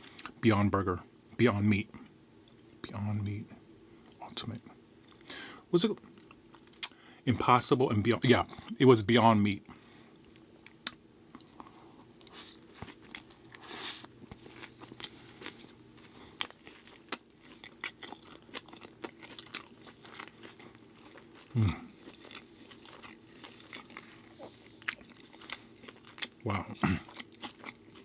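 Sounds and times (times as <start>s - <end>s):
chewing and crunching: 8.3s - 8.8s, 10.2s - 28.0s
person humming mm: 21.5s - 21.9s.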